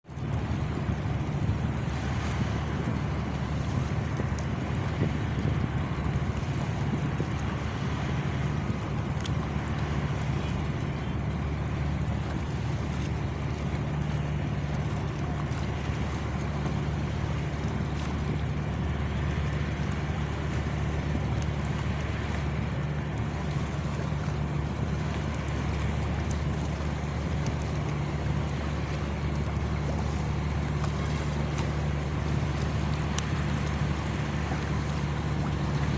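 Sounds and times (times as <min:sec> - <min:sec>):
water noise: 0:00.0 - 0:35.9
ship engine droning: 0:00.1 - 0:35.9.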